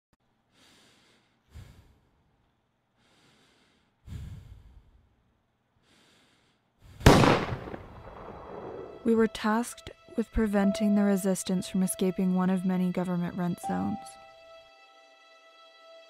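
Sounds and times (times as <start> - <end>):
faint airy breathing: 0.4 - 5.2, 5.8 - 7.1.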